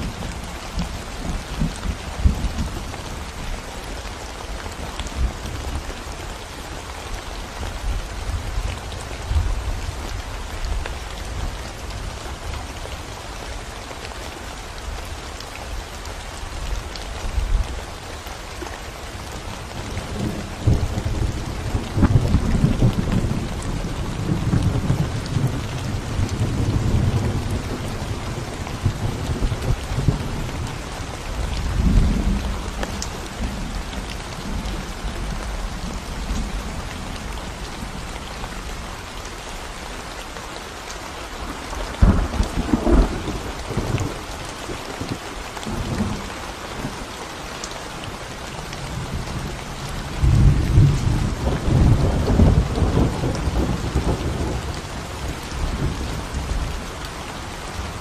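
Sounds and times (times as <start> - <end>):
rain on concrete road: 0.0 - 58.0.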